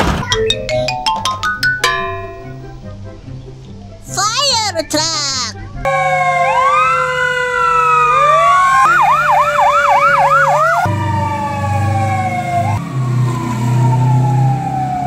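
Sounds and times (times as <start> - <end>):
fire engine siren: 5.8 - 15.0.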